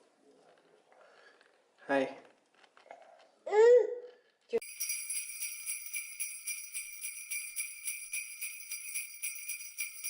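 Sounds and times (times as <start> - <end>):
sleigh bells shaken: 4.6 - 10.0.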